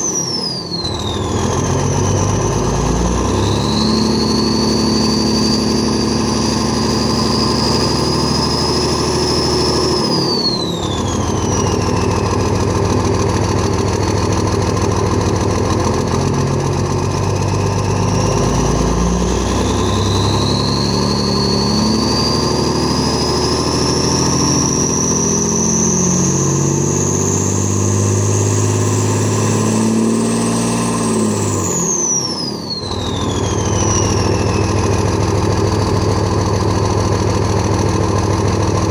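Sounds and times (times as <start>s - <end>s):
turbo whistle: 0.0s - 14.6s, 16.7s - 37.4s
diesel engine running: 0.0s - 38.9s.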